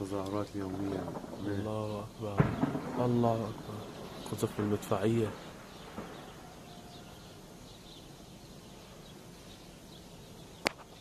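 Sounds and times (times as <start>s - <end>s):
sharp crack: 0.0s - 6.3s, 10.6s - 11.0s
small birds chirping: 0.0s - 11.0s.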